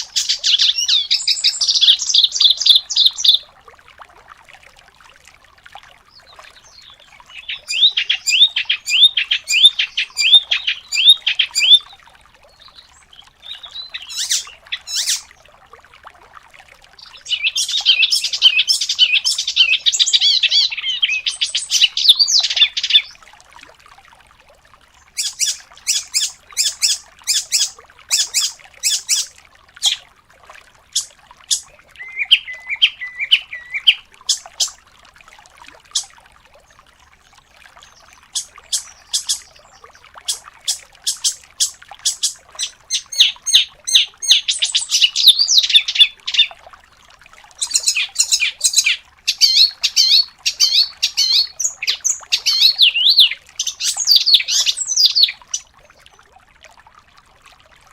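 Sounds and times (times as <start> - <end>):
songbirds singing: 0.0 - 3.5, 6.1 - 15.4, 16.9 - 23.2, 25.0 - 30.0, 30.9 - 34.8, 37.8 - 46.6, 47.6 - 55.6.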